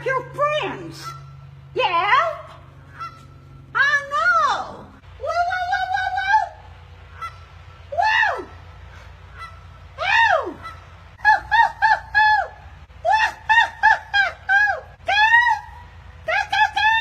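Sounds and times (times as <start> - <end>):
geese honking: 0.6 - 1.6, 2.5 - 4.4, 7.0 - 11.5.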